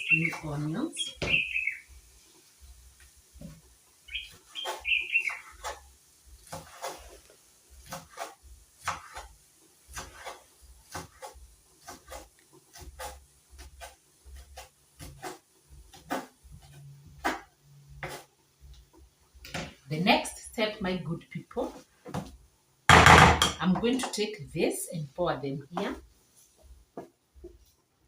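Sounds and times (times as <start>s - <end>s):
knife chopping on cutting board: 7.8s - 9.3s, 9.9s - 18.3s.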